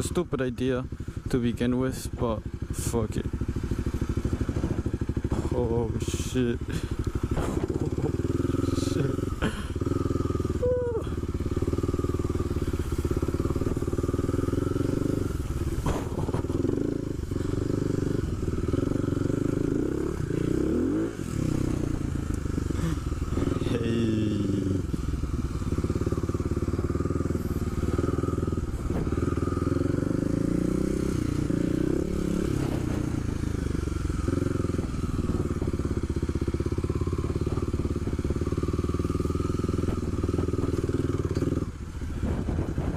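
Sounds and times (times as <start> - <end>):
motorcycle engine revving: 0.0 - 42.9
knocks and clatters: 15.8 - 16.8.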